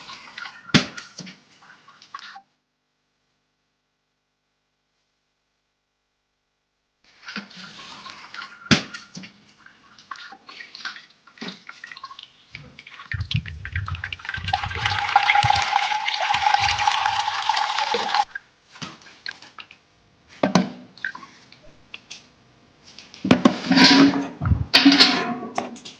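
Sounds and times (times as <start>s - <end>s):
water running into container: 11.4s - 18.3s
objects knocking and clattering: 12.6s - 18.3s, 23.2s - 25.9s.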